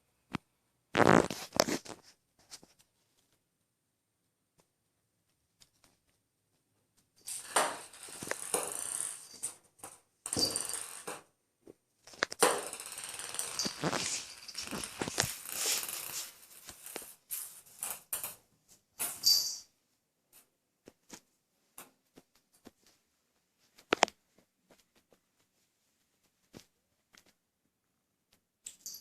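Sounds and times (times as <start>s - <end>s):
ping-pong ball rattling on hard surface: 7.3s - 11.3s, 12.3s - 17.1s.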